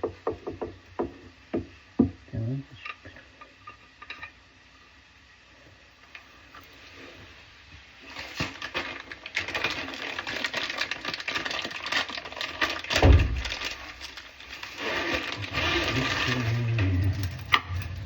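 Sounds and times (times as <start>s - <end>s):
heavy thump: 13.0s - 13.6s.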